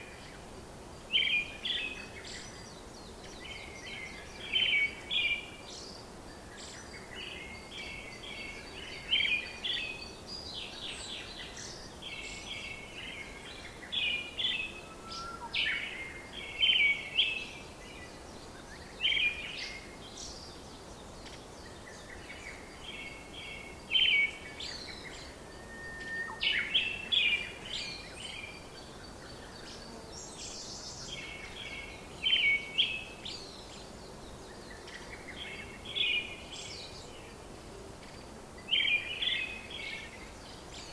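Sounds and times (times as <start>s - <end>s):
background hiss: 0.0s - 40.9s
songbirds chirping: 0.0s - 40.9s
bird whistle: 14.8s - 15.6s, 25.5s - 26.8s.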